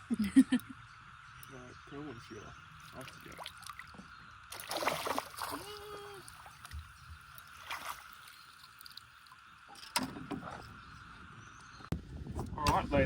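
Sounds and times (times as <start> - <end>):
faint water sloshing: 2.8 - 10.8.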